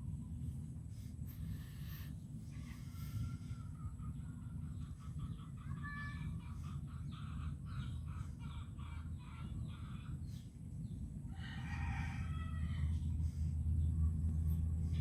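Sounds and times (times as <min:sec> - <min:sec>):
chickens clucking: 0:03.2 - 0:12.9
rooster crowing: 0:11.3 - 0:13.3.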